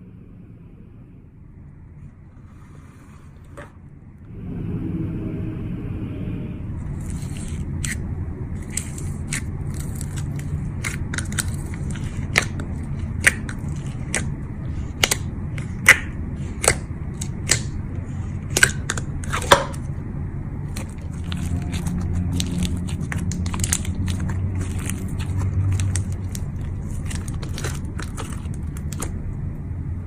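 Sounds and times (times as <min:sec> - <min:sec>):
steady low hum: 0:00.0 - 0:30.0
sticky slime clicks: 0:15.0 - 0:17.8.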